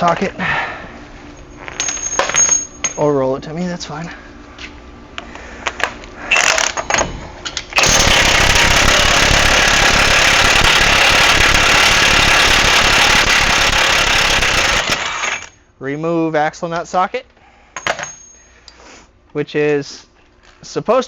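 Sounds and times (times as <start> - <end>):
metal clinks: 1.6 - 3.0, 17.8 - 18.5
impact wrench rattling: 7.8 - 15.5.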